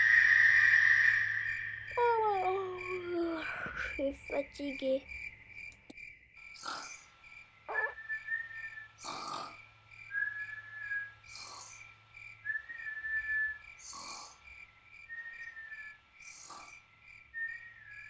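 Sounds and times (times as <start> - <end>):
crickets chirping: 0.0 - 18.0
cartoon snoring with whistle: 6.5 - 7.1, 7.7 - 14.6, 15.3 - 18.0.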